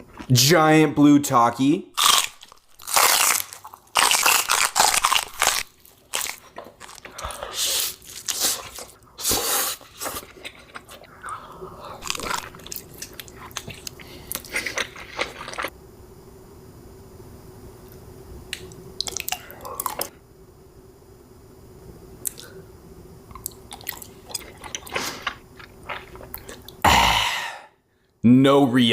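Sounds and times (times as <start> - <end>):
crunchy chewing of chips: 2.0 - 15.7, 18.5 - 20.1, 23.3 - 26.8.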